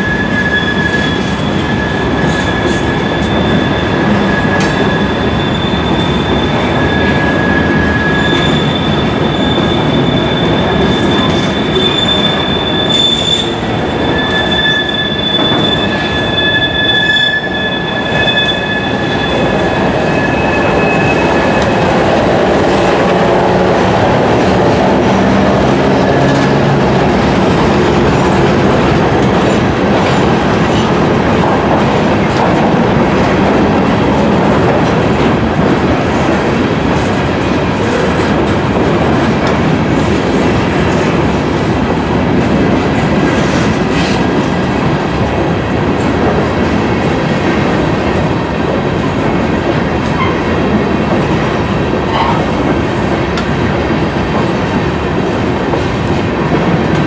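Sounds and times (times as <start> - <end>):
high-pitched wheel squeal: 0.0 - 22.1
freight train rumbling past: 0.0 - 57.0.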